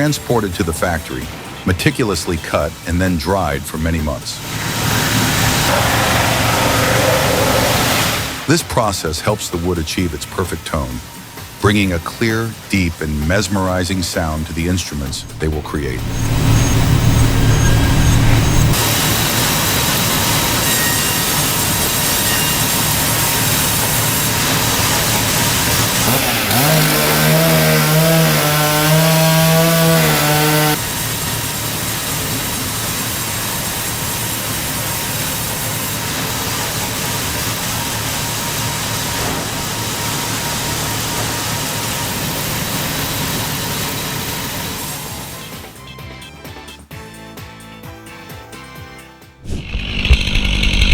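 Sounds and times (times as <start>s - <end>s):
power saw cutting wood: 0.0s - 45.7s, 49.4s - 50.9s
pitched motor tone: 15.0s - 19.0s, 49.4s - 50.9s.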